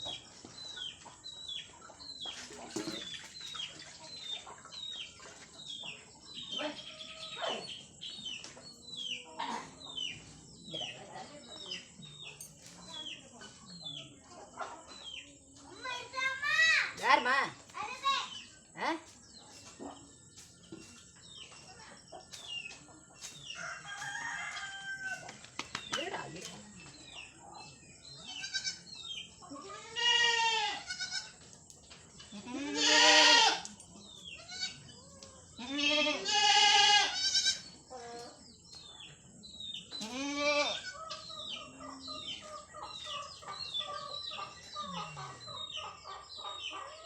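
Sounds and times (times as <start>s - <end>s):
birds chirping: 0.0s - 36.6s, 37.2s - 47.0s
rooster crowing: 23.6s - 25.3s
hen-like clucks: 40.8s - 47.0s.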